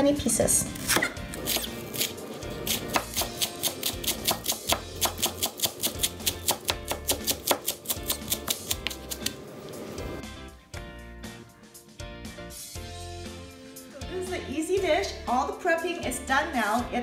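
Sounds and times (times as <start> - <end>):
background music: 0.0 - 17.0
knife chopping on plastic board: 0.9 - 9.3.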